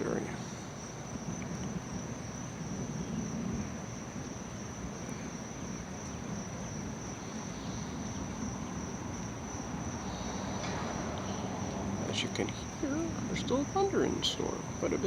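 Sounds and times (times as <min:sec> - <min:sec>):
crickets trilling: 0:00.0 - 0:15.0
distant thunder rumble: 0:05.6 - 0:15.0.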